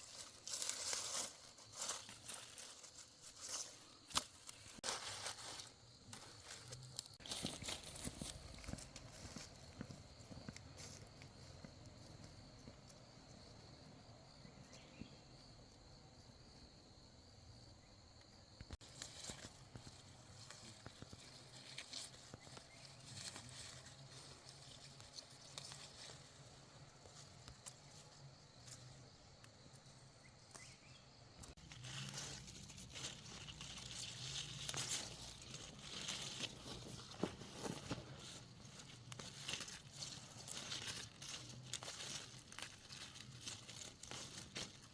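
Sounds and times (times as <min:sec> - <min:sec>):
plants rustling and snapping: 0:00.0 - 0:11.3, 0:18.7 - 0:29.5, 0:31.4 - 0:44.9
light footsteps: 0:07.2 - 0:13.0.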